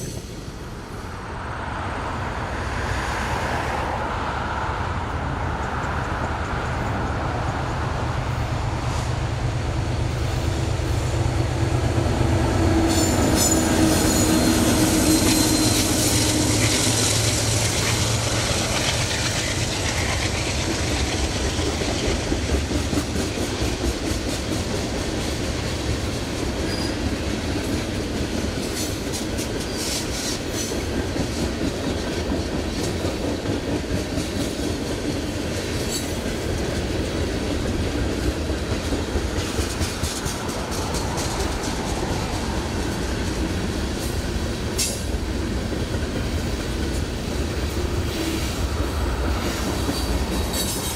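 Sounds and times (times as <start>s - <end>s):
diesel locomotive rumble: 4.1s - 50.9s
train wheels clicking over rail joints: 12.6s - 50.9s.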